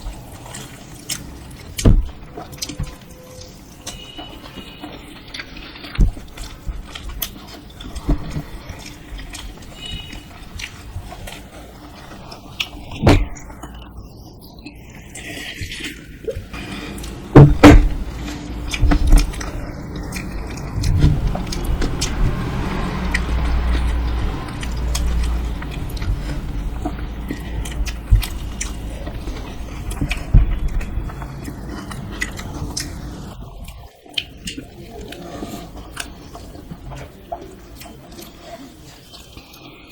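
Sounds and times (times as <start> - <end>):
biting and chewing food: 0.0 - 39.9
thump: 1.8 - 2.2, 17.4 - 18.0
low thumps: 17.1 - 19.6.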